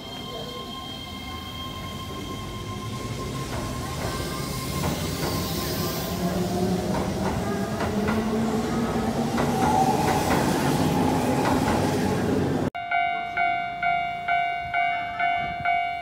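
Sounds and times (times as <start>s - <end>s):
electric train rumbling: 0.0s - 16.0s.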